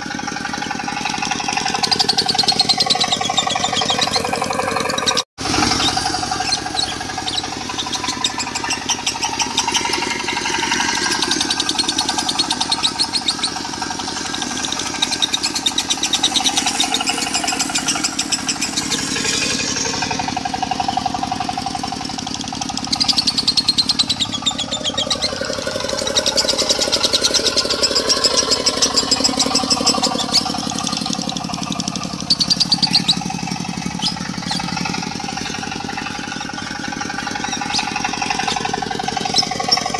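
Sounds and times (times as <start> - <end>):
diesel engine running: 0.0 - 39.9
lovebirds chattering: 5.9 - 10.4, 11.0 - 13.6, 22.6 - 39.9.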